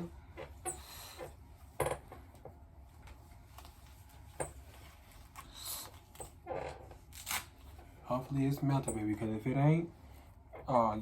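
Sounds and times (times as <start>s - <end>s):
soft rustles of handling: 2.2s - 11.0s.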